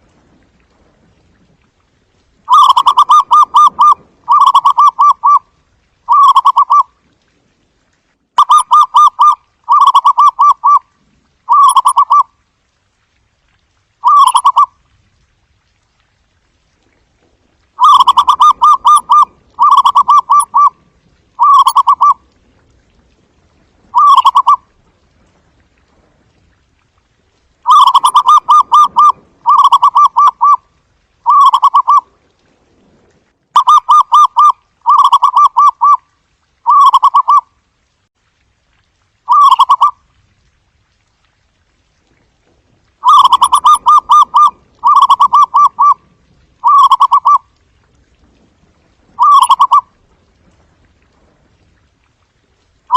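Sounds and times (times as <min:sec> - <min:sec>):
dove cooing: 0:02.5 - 0:05.4, 0:06.1 - 0:06.8, 0:08.4 - 0:10.8, 0:11.5 - 0:12.2, 0:14.0 - 0:14.7, 0:17.8 - 0:20.8, 0:21.4 - 0:22.2, 0:23.9 - 0:24.6, 0:27.7 - 0:30.6, 0:31.3 - 0:32.0, 0:33.6 - 0:36.0, 0:39.3 - 0:39.9, 0:43.0 - 0:46.0, 0:46.6 - 0:47.4, 0:49.2 - 0:49.9.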